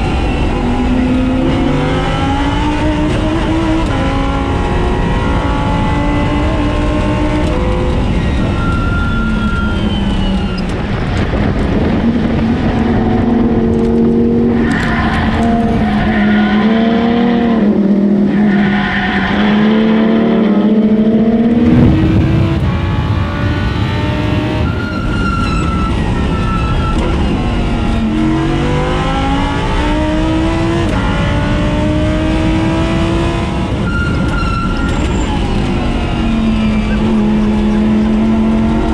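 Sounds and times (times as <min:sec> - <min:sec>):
race car engine revving: 0:21.2 - 0:25.7, 0:28.2 - 0:33.9.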